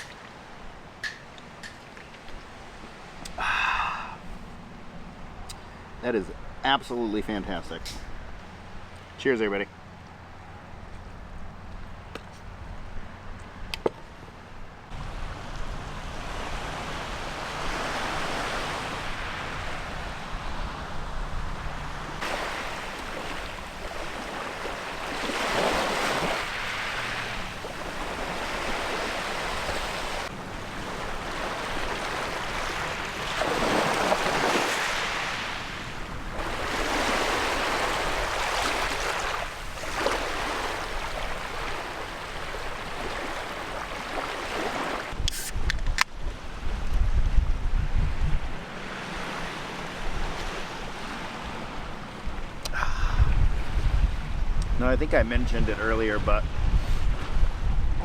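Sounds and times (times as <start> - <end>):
ocean surf washing onto beach: 2.8 - 4.2, 14.9 - 45.2.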